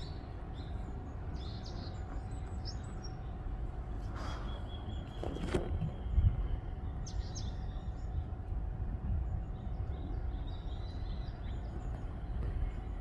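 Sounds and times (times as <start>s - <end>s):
wind rumbling on microphone: 4.8s - 13.0s.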